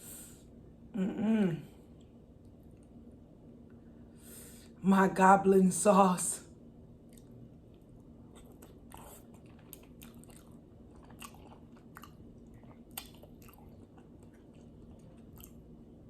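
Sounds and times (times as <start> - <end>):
person chewing food: 7.0 - 16.0.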